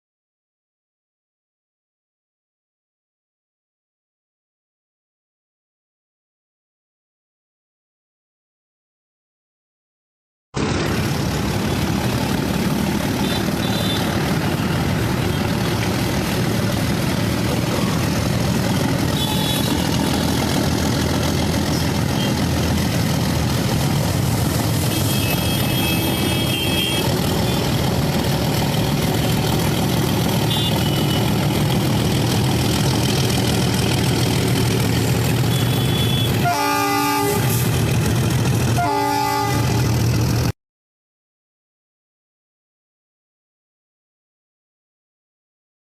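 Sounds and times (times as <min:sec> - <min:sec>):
diesel locomotive engine running: 0:10.6 - 0:40.5
locomotive horn: 0:11.5 - 0:23.0, 0:24.4 - 0:27.8, 0:30.1 - 0:31.6, 0:35.2 - 0:38.0, 0:38.6 - 0:40.2.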